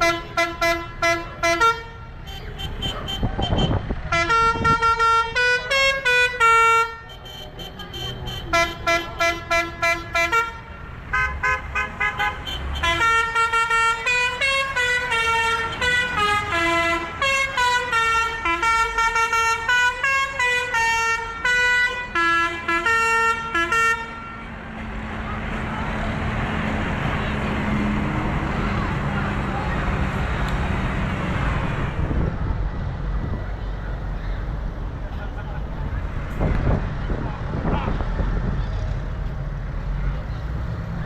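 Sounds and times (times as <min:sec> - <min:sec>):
engine and road noise: 0:00.0 - 0:41.0
musical horn toots: 0:02.6 - 0:24.4.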